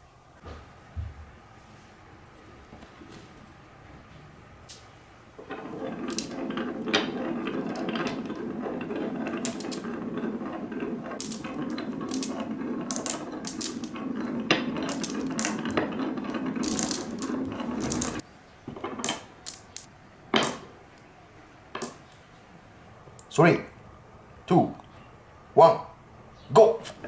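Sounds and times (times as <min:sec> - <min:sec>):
marbles clacking: 0:05.4 - 0:20.7, 0:21.8 - 0:22.1
marbles rolling on track: 0:05.4 - 0:20.7.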